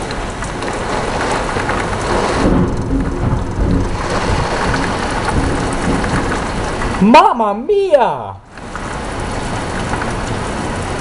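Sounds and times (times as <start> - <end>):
heavy rain pouring: 0.0 - 11.0
low rumble of thunder: 0.8 - 7.0.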